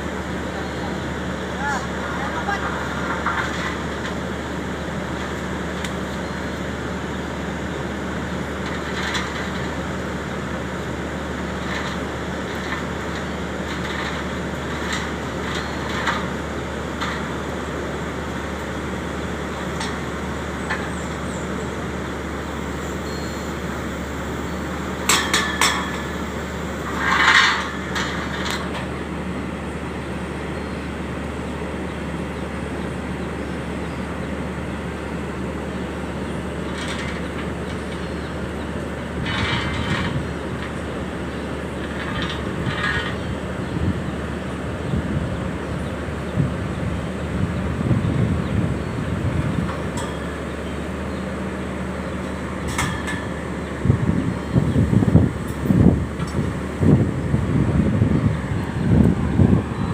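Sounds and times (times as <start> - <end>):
drilling rig engine humming: 0.0 - 59.9
loud metal clank: 25.1 - 26.1.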